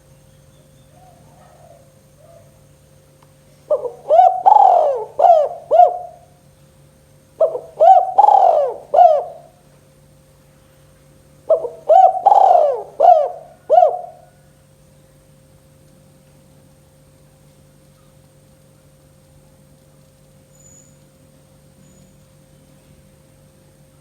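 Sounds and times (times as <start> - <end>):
dove cooing: 3.7 - 6.3, 7.4 - 9.6, 11.5 - 14.4.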